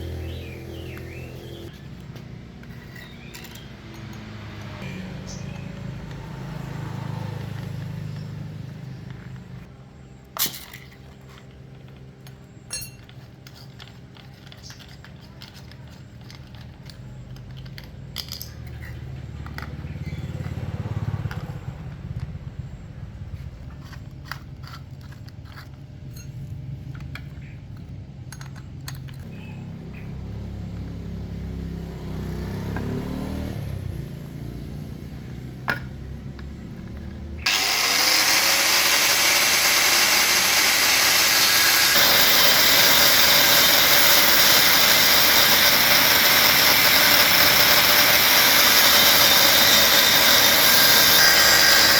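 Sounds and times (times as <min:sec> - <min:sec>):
metallic clicks and scrapes: 0:23.5 - 0:29.6.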